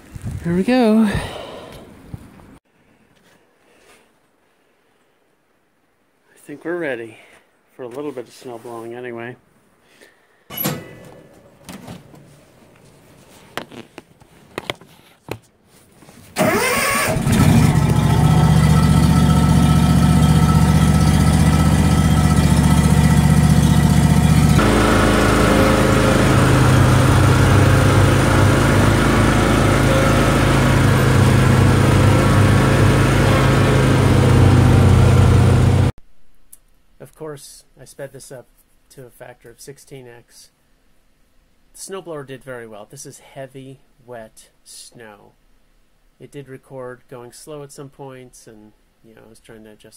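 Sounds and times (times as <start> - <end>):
garden tractor engine running: 16.4 - 35.9.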